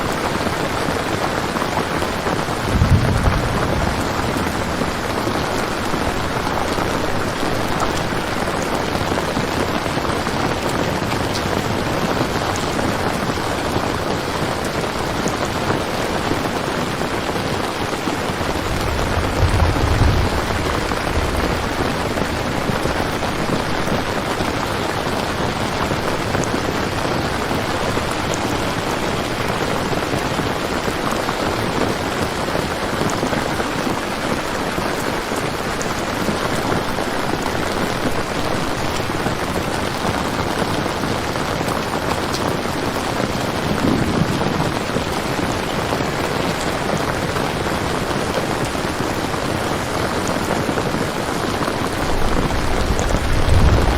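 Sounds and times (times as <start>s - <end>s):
steady rain falling: 0.0s - 53.9s
low rumbles: 2.5s - 8.2s, 18.4s - 23.7s, 52.2s - 53.9s.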